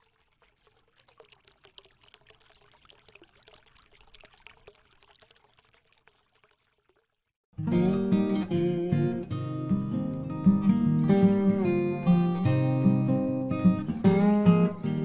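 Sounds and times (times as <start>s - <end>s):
pouring with crackles: 0.0s - 7.4s.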